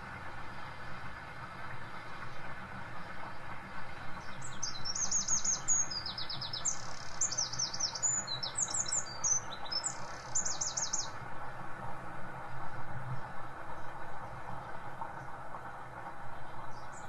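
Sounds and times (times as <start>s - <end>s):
songbird whistling: 4.6s - 11.1s.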